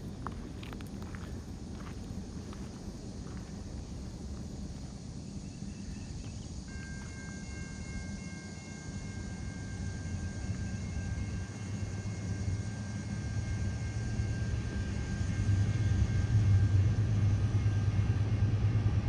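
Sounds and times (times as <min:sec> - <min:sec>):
diesel locomotives rumbling: 0:00.0 - 0:19.0
locomotive air horn chord: 0:06.7 - 0:16.5.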